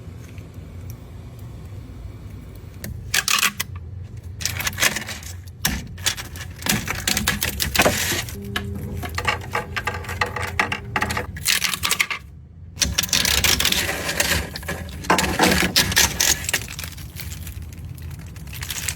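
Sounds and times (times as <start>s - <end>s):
small hard objects clattering: 4.2s - 18.9s.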